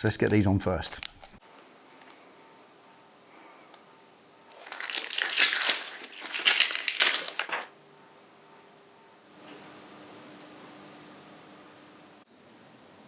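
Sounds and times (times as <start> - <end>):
plastic packaging crinkling: 4.6 - 7.7.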